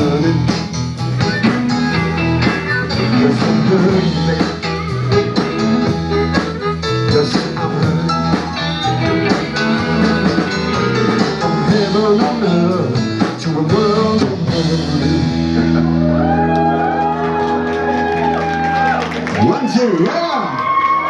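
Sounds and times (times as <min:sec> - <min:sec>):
live blues band playing: 0:00.0 - 0:19.3.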